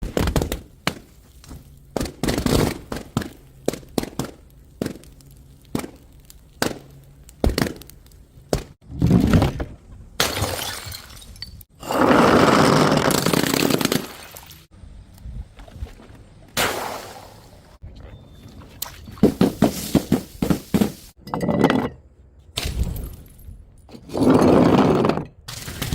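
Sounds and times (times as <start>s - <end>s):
glass shattering: 10.2s - 11.7s.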